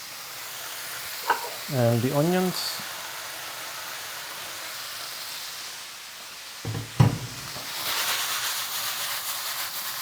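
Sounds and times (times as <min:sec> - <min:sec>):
vegetables sizzling in fat: 0:00.0 - 0:10.0
knocks: 0:06.7 - 0:07.4.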